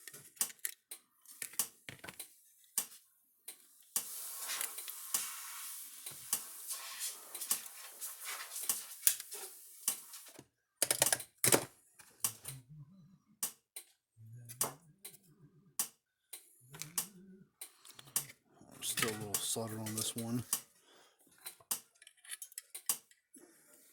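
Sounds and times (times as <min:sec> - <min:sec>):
small clicks and taps: 0:00.0 - 0:04.1, 0:21.4 - 0:23.2
hissy rustle: 0:04.0 - 0:10.3.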